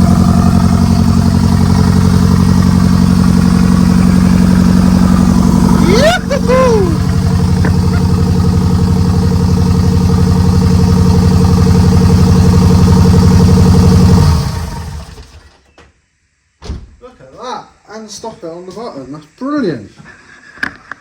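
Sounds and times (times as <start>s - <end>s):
car engine running rough: 0.0s - 15.4s.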